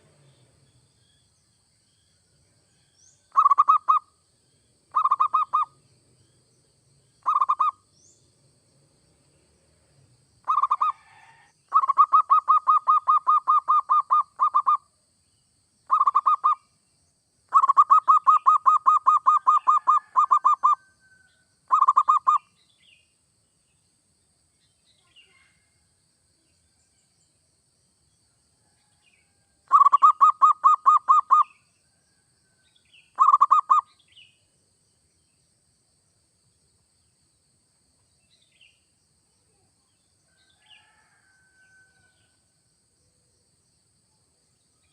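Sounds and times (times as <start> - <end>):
dove cooing: 3.4 - 4.0, 4.9 - 5.7, 7.2 - 7.8, 10.5 - 14.8, 15.9 - 16.6, 17.5 - 20.8, 21.7 - 22.4, 29.7 - 31.5, 33.2 - 33.8
faint high chirps: 7.2 - 8.2, 17.5 - 23.8, 24.6 - 25.8, 32.5 - 34.5.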